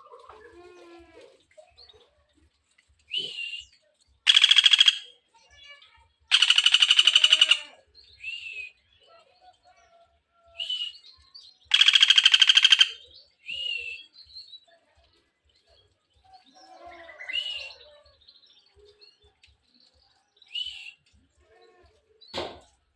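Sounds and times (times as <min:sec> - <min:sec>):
bird chirping and trilling: 0:03.1 - 0:05.2, 0:06.3 - 0:09.4, 0:10.6 - 0:14.7.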